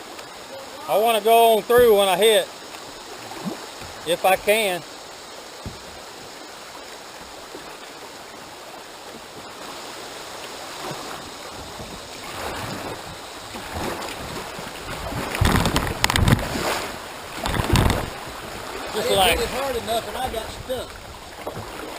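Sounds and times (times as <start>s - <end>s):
paddle strokes splashing: 0.0s - 21.9s
river water rushing: 0.0s - 21.9s
kayak knocking against logs: 1.6s - 4.7s, 5.4s - 7.7s, 10.5s - 21.9s.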